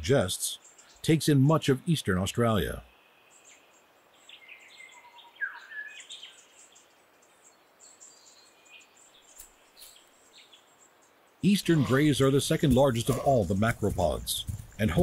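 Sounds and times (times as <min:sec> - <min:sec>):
bird chirps and whistles: 0:04.8 - 0:06.4
soft hiss: 0:06.0 - 0:12.4.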